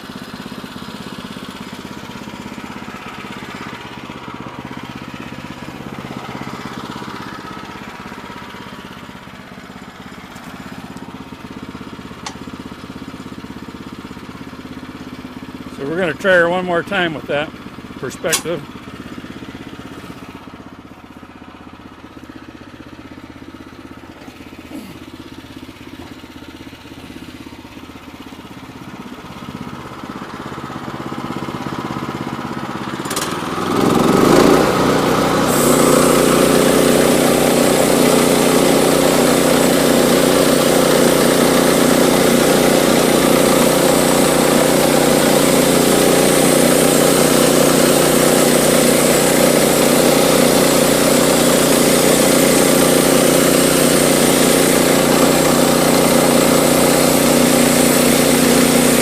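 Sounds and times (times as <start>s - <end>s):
small gas engine running: 0.0s - 59.0s
band saw blade cutting log: 18.0s - 18.7s, 24.2s - 25.0s, 33.0s - 59.0s.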